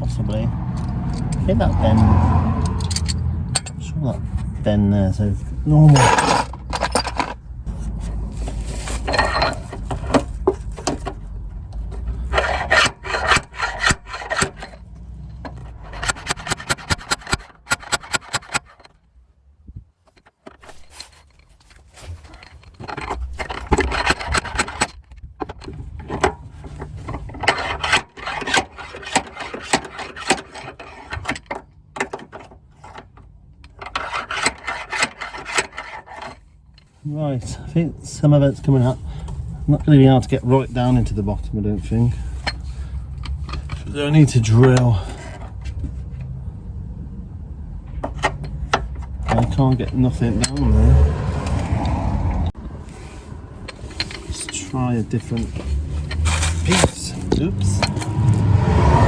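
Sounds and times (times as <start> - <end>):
dent puller scraping car metal: 12.0 - 18.9, 22.2 - 36.5, 48.1 - 52.0, 53.7 - 59.0.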